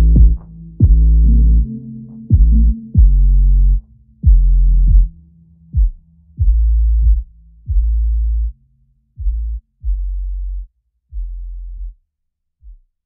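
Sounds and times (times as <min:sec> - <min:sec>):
deep bass notes dropping in pitch: 0:00.0 - 0:08.6.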